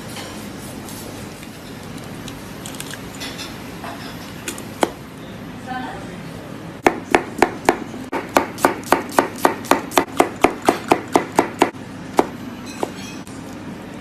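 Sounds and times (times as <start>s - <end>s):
knife chopping on cutting board: 6.8s - 13.1s.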